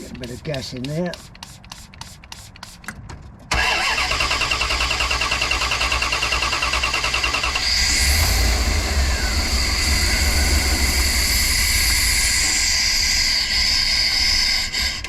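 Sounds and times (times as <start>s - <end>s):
high engine whine: 3.5s - 15.0s
van engine cranking and running: 3.5s - 15.0s.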